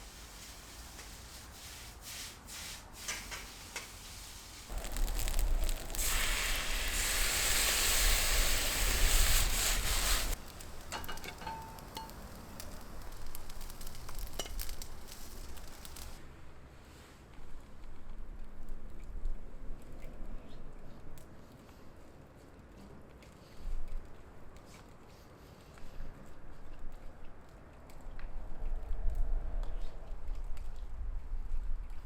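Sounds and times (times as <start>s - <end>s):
rice sizzling in a pan: 0.0s - 16.2s.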